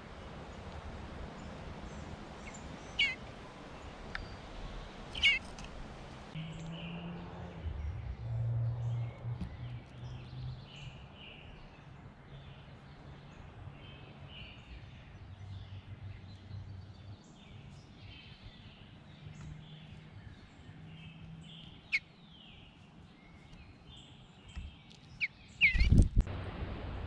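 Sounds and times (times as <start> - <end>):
birds singing in woodland: 0.0 - 26.0
sharp bird call: 2.9 - 3.2, 5.1 - 5.4.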